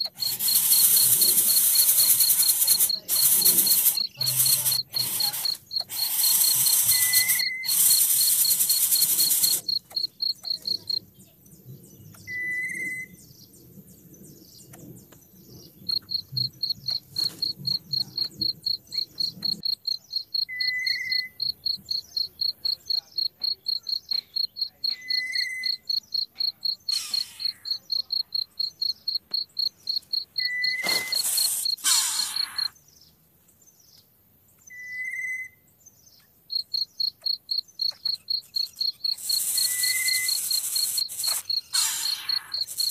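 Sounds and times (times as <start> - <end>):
insect chirping: 0.0 - 11.1, 15.6 - 32.8, 36.5 - 42.9
loud hiss of noise: 0.2 - 9.6, 30.8 - 32.6.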